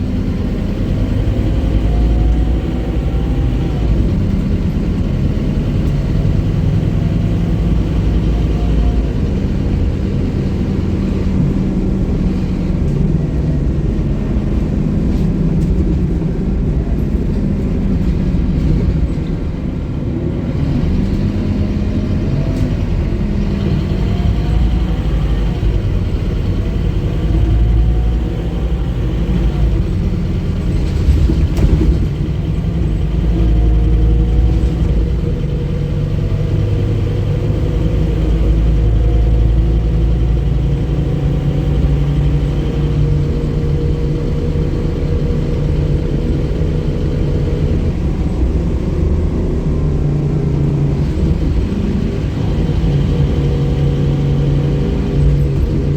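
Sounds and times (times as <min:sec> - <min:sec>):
bus engine rumble: 0:00.0 - 0:55.9.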